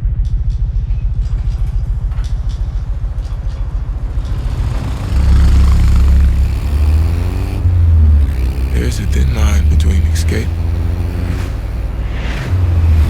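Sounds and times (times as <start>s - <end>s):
motorcycle engine revving: 0.1s - 13.0s.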